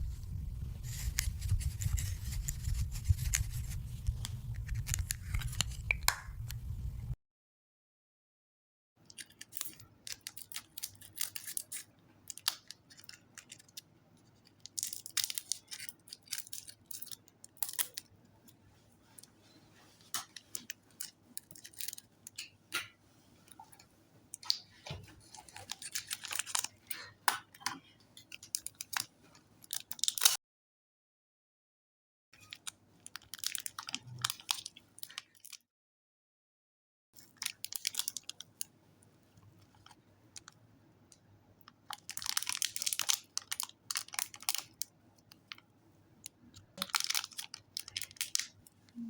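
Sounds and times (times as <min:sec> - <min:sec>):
slime clicking and crackling: 0:41.8 - 0:45.5.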